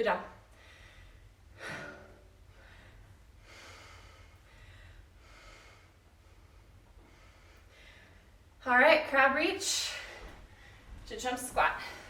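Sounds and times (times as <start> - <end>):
person breathing hard: 0.5 - 8.4.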